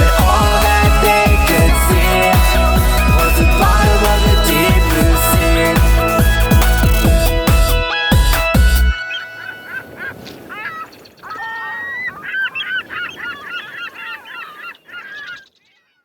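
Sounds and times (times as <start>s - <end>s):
band music: 0.0s - 9.0s
gulls calling: 0.0s - 15.6s.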